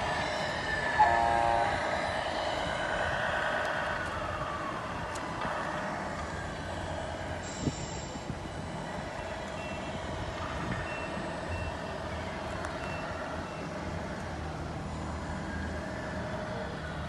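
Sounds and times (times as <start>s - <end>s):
high reversing beeps: 0.0s - 13.9s
truck engine rumble: 0.0s - 17.0s.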